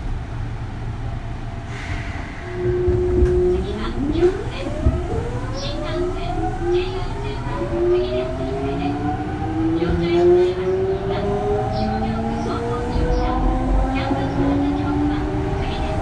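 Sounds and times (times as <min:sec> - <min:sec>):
wheels rumbling on rails: 0:00.0 - 0:16.0.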